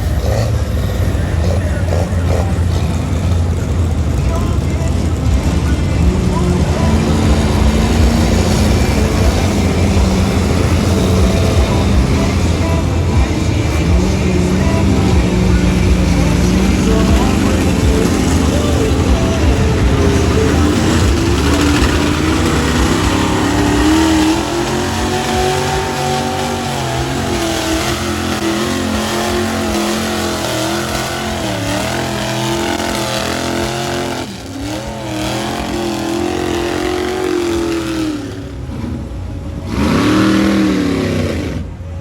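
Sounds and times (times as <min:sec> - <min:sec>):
truck engine revving: 0:00.0 - 0:42.0.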